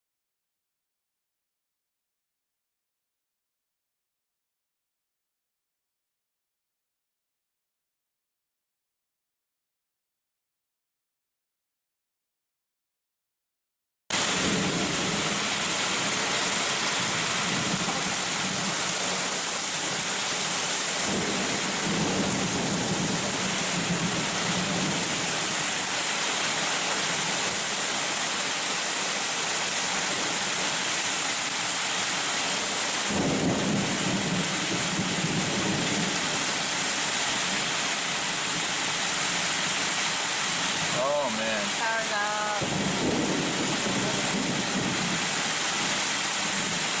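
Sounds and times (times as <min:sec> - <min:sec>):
heavy rain pouring: 0:14.1 - 0:47.0
deep rumbling thunder: 0:14.2 - 0:16.2, 0:21.0 - 0:25.3, 0:33.1 - 0:36.4, 0:42.6 - 0:45.3
high wind: 0:41.8 - 0:45.4.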